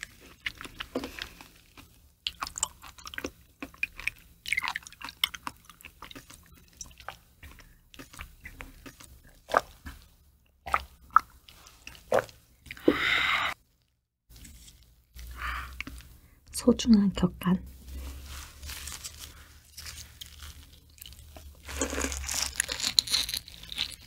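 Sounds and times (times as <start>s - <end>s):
wet chewing mouth sounds: 0.1s - 10.1s.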